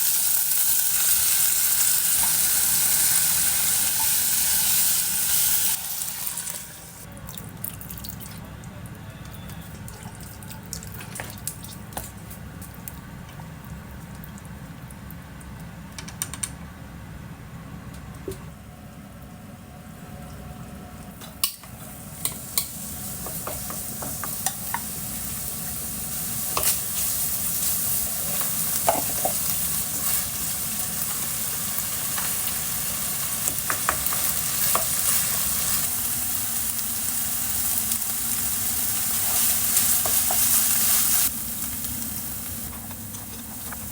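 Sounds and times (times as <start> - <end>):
food sizzling in a pan: 0.0 - 7.1, 21.8 - 43.9.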